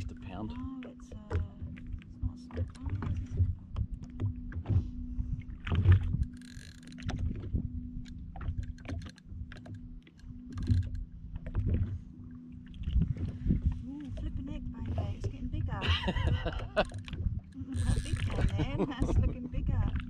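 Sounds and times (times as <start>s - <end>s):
steady low hum: 0.0s - 20.0s
water slapping against hull: 0.0s - 20.0s
fishing gear knocks and clicks: 5.7s - 11.9s, 16.1s - 19.3s.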